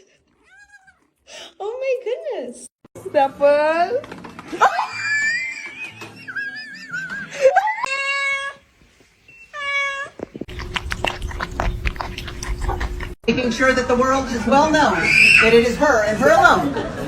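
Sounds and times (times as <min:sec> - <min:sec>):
cat meowing: 0:00.4 - 0:01.1, 0:07.8 - 0:08.6, 0:09.5 - 0:10.2.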